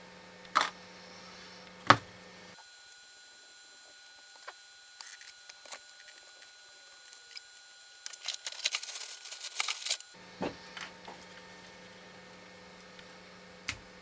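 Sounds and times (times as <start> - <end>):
steady low hum: 0.7 - 14.0
metal parts clicking and clinking: 5.0 - 10.2.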